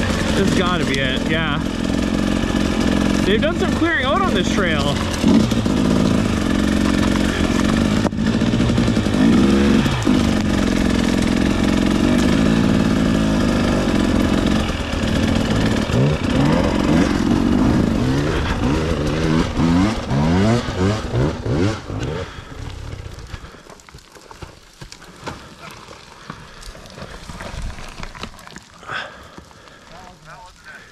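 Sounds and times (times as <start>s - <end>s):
dirt bike engine revving: 0.0s - 23.6s.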